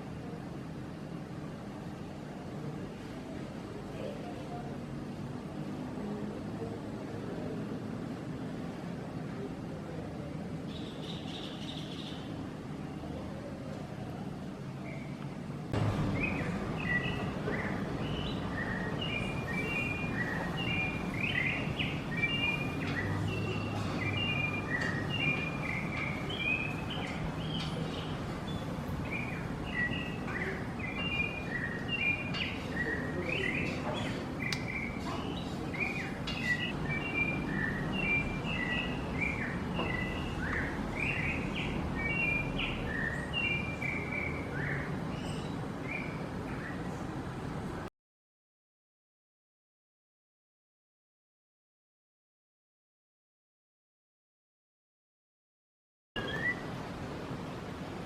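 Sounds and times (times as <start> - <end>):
songbird chirping: 10.6 - 13.2, 14.0 - 47.0, 56.2 - 57.4.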